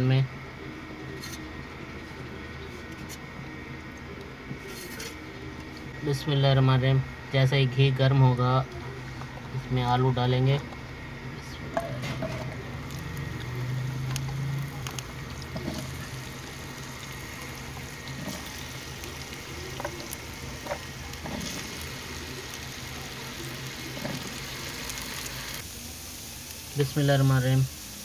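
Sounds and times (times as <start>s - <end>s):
potatoes sizzling in a pan: 11.4s - 28.0s.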